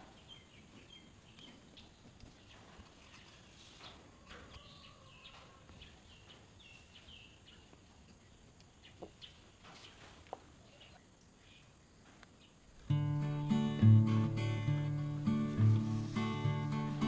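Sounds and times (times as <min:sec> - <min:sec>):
faint bird chirps: 0:10.6 - 0:12.8.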